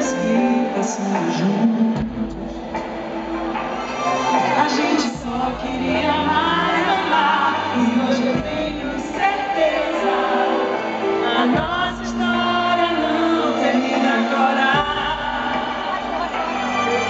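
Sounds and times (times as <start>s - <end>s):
live band playing ballad: 0.0s - 17.0s
person singing: 0.0s - 17.0s.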